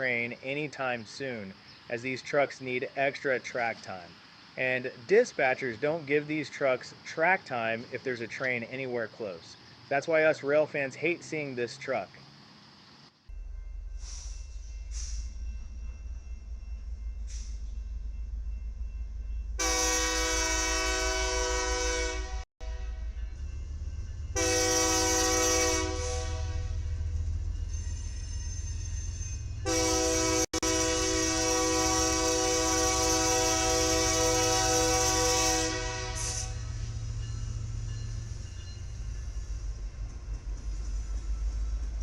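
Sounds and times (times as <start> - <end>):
passing train rumbling: 0.0 - 42.0
train air horn blasts: 19.6 - 23.2, 24.3 - 27.0, 29.6 - 36.9.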